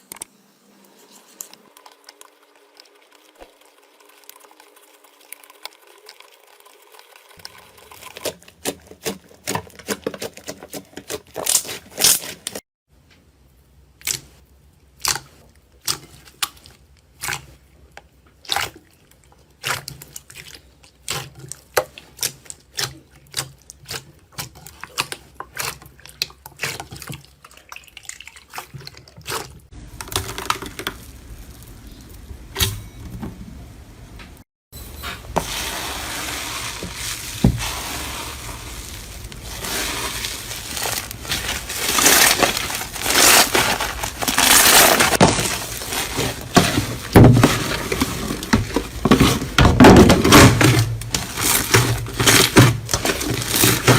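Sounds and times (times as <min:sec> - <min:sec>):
crunchy slime squeezed by hand: 0:38.6 - 0:46.6.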